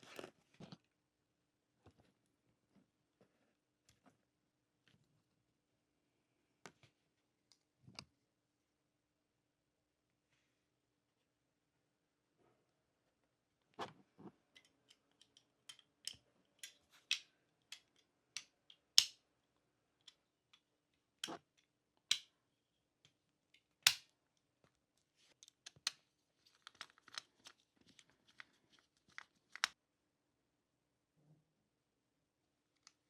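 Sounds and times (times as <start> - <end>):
model car parts clicking: 14.5 - 19.2.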